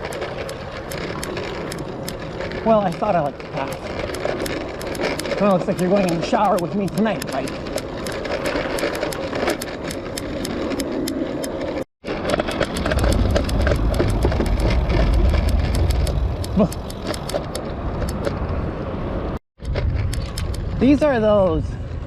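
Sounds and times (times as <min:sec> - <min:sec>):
bicycle rattling over rough path: 0:00.0 - 0:18.9, 0:19.6 - 0:22.0
heavy low rumble: 0:12.1 - 0:22.0.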